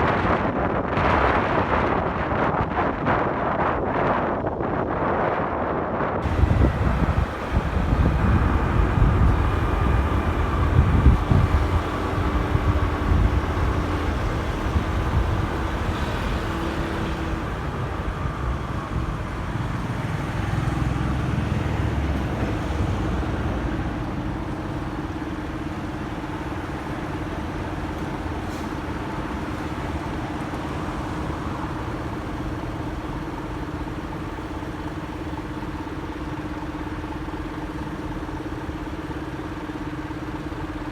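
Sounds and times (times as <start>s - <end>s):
wind rumble on microphone: 0.0s - 35.8s
motorcycle engine running: 6.2s - 16.5s.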